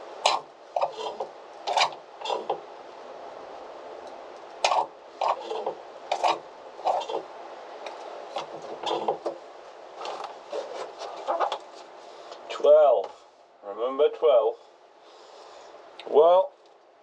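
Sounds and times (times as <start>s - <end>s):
hand tool scraping hard surface: 0.2s - 2.6s, 4.6s - 7.3s, 8.3s - 9.3s, 10.0s - 11.6s.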